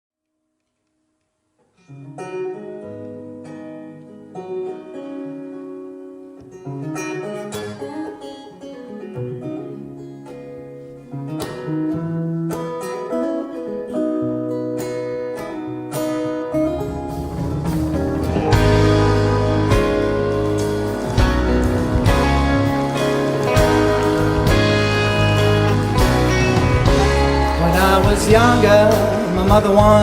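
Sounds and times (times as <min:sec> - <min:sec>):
live blues band playing: 0:07.0 - 0:30.0.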